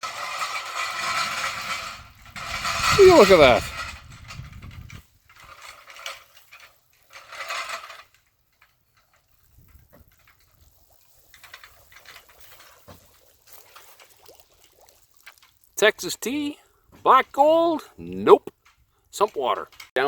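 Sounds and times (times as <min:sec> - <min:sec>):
water splashing and gushing: 0:00.0 - 0:03.9, 0:09.1 - 0:16.5
faint water trickling: 0:08.0 - 0:20.0.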